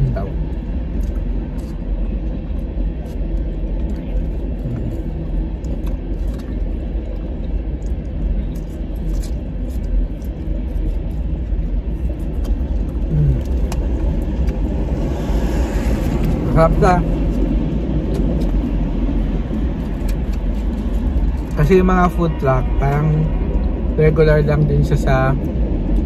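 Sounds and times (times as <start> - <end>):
low rumble of trains: 0.0 - 26.0.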